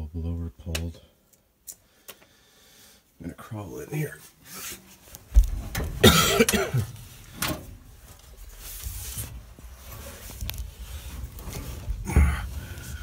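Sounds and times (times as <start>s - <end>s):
man coughing: 6.0s - 7.0s.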